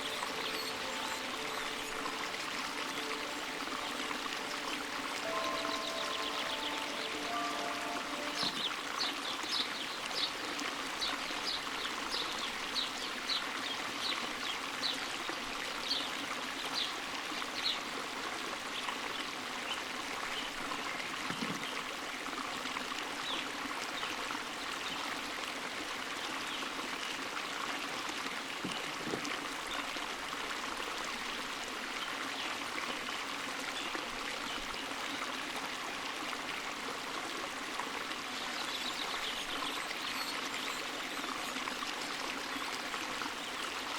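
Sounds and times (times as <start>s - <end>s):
bird chirping: 0.0s - 8.8s
creek water flowing over stones: 0.0s - 43.9s.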